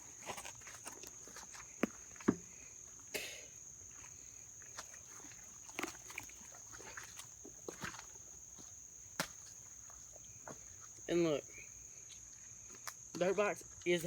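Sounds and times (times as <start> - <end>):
high insect drone: 0.0 - 14.0
squelching in wet mud: 3.9 - 11.0.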